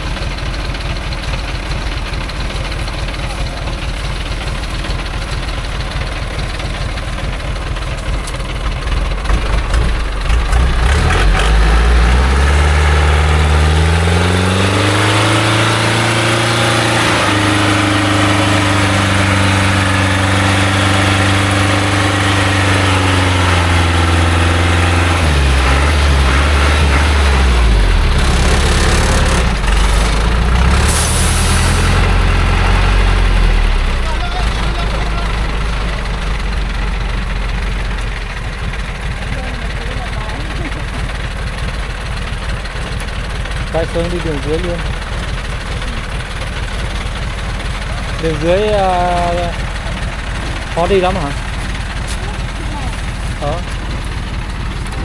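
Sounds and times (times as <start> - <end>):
truck engine revving: 0.0 - 55.0
short hiss: 30.9 - 32.0.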